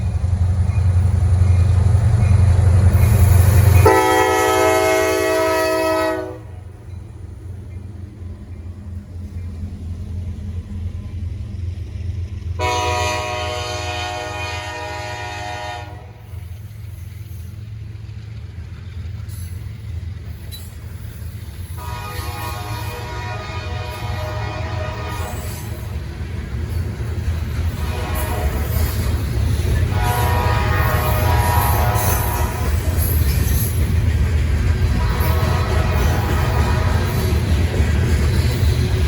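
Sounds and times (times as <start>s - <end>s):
low rumble of locomotives: 0.0s - 39.0s
locomotive horn blasts: 3.7s - 6.7s, 12.6s - 16.3s, 21.8s - 25.8s, 27.8s - 29.1s, 29.9s - 32.8s, 35.0s - 37.4s.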